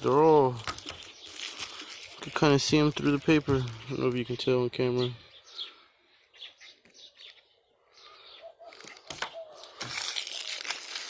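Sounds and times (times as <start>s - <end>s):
paper rustling and crinkling: 0.0s - 4.5s, 8.6s - 11.0s
birds chirping faintly: 0.0s - 11.0s.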